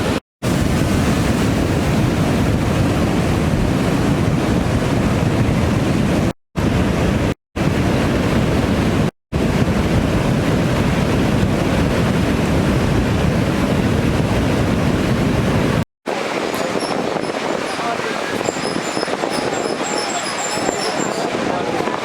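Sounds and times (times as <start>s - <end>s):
wind buffeting microphone: 0.0s - 22.0s
river rushing in flood: 16.1s - 22.0s.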